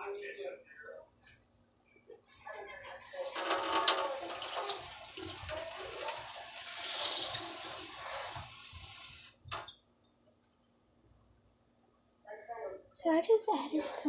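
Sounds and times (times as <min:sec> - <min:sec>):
tap water running into container: 0:03.2 - 0:09.8.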